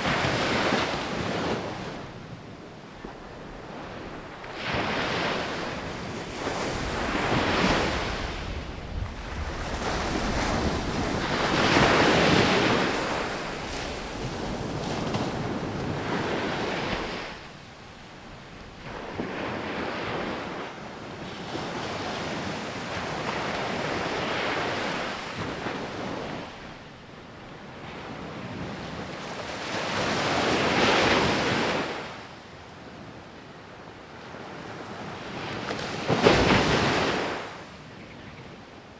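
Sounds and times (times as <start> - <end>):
waves crashing on beach: 3.1 - 17.6
wind buffeting microphone: 5.6 - 17.4.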